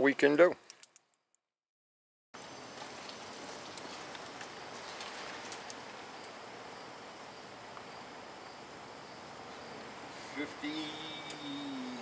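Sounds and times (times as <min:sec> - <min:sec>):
outdoor background hiss: 0:02.4 - 0:12.0
faint high clicks: 0:03.7 - 0:06.4, 0:11.2 - 0:11.6.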